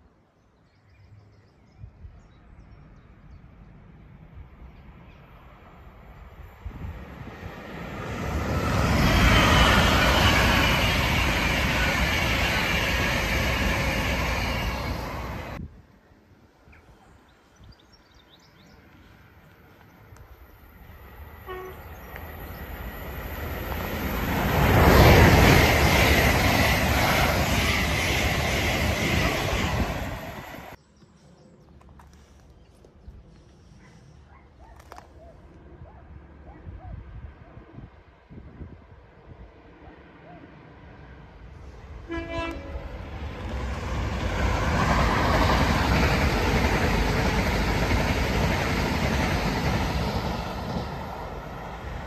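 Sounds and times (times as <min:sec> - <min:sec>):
train passing at speed: 0:02.8 - 0:17.6, 0:18.2 - 0:30.8, 0:36.2 - 0:52.0
train approaching: 0:03.6 - 0:15.6, 0:18.6 - 0:30.8, 0:39.6 - 0:52.0.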